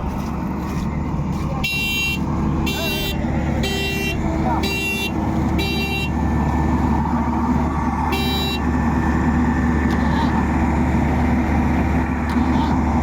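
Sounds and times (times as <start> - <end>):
diesel machinery engine running: 0.0 - 13.0
horn toots: 1.6 - 6.2, 8.1 - 8.7.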